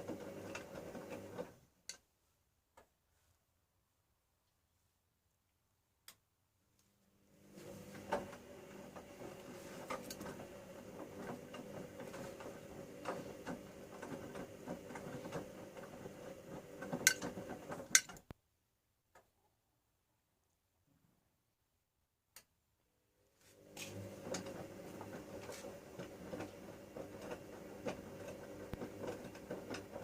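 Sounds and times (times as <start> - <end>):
washing machine clicks and clacks: 0.0 - 1.6, 7.8 - 18.3, 23.8 - 30.0
washing machine motor humming: 0.0 - 1.6, 7.2 - 18.1, 23.5 - 30.0.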